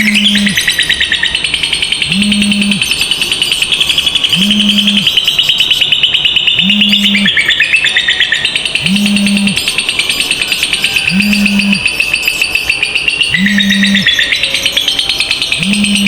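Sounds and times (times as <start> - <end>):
lovebirds chattering trill: 0.0 - 16.0
low hum: 2.0 - 2.8, 4.3 - 5.1, 8.8 - 9.6, 11.1 - 11.8.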